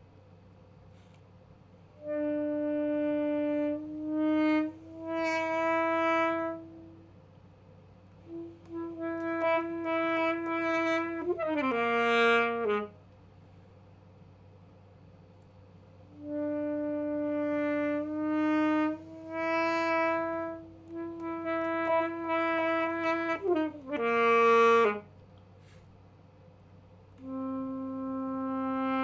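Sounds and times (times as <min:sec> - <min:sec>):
alto saxophone playing: 0:02.0 - 0:07.2, 0:08.2 - 0:13.2, 0:16.0 - 0:25.2, 0:27.1 - 0:29.0.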